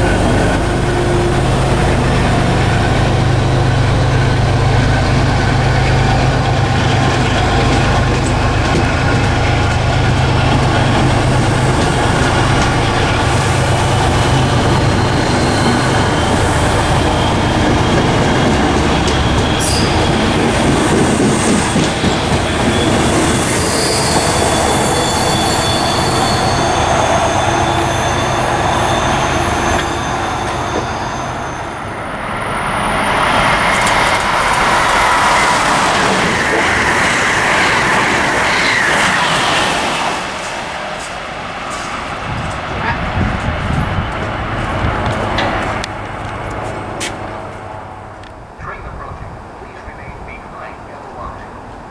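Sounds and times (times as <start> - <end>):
train wheels clattering over rails: 1.8 - 31.4, 39.9 - 49.6
train wheels squealing: 13.3 - 35.4.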